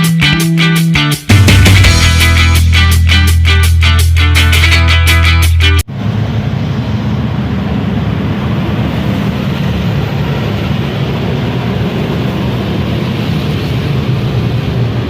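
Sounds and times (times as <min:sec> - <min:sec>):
loud low rumble: 0:01.3 - 0:09.8.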